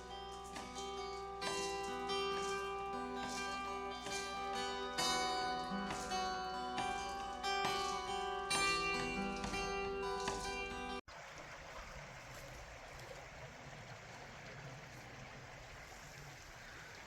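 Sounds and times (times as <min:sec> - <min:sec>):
plucked string music: 0:00.0 - 0:11.0
creek water flowing: 0:00.0 - 0:17.0.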